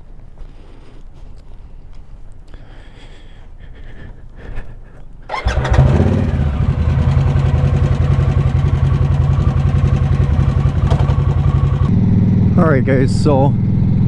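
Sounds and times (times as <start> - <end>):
motorcycle engine starting and idling: 5.2 - 14.0.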